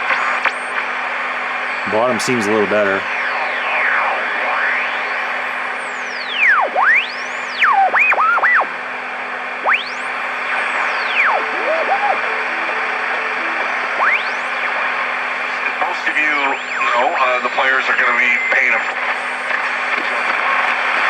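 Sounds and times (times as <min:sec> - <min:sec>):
radio static hiss: 0:01.6 - 0:05.5, 0:10.2 - 0:21.0
radio tuning whistles: 0:09.6 - 0:20.7.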